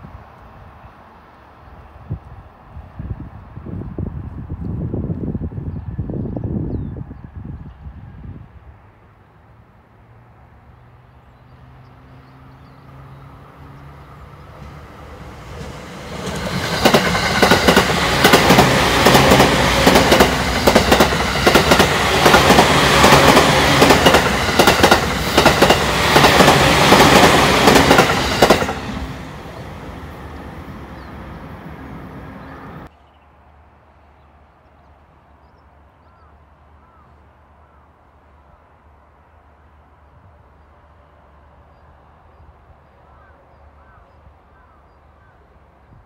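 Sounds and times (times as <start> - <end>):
train wheels clickety-clack: 14.6 - 29.1.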